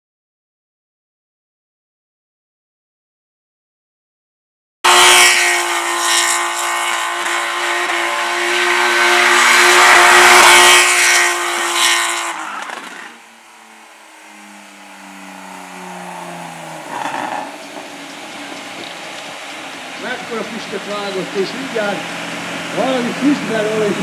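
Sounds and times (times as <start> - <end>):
car engine revving: 4.8 - 24.0
tyre squeal: 7.9 - 19.8.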